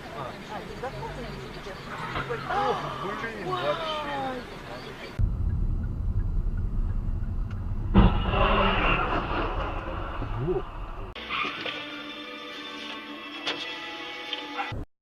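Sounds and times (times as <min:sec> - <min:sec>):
car road rumble: 0:00.0 - 0:11.2
loud collision bang: 0:05.2 - 0:11.2
metal scraping: 0:05.5 - 0:11.9.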